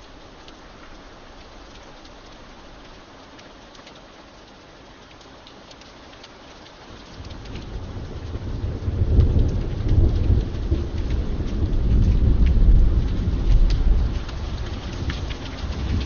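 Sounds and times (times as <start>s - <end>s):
sharp raindrop ticks: 0.0s - 16.0s
steady rain: 0.0s - 16.0s
thunder rumbling: 7.2s - 16.0s.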